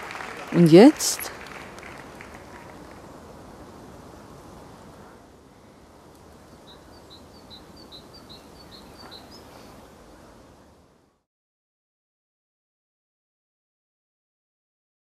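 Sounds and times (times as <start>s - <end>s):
low background noise: 0.0s - 11.3s
songbird chirping: 6.2s - 10.5s.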